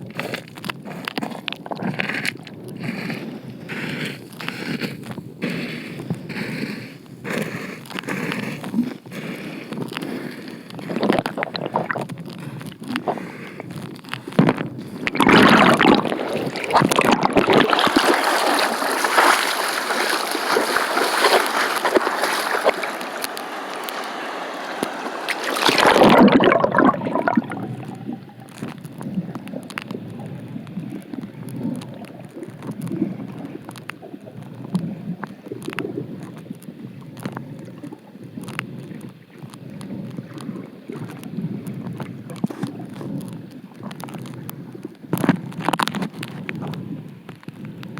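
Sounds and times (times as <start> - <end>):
underwater clicks and gurgles: 0.0 - 47.9
stream water rushing: 15.2 - 28.6.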